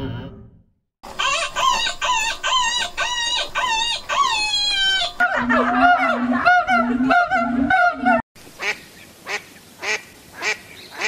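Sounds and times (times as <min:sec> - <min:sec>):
chicken calling: 0:01.0 - 0:08.7.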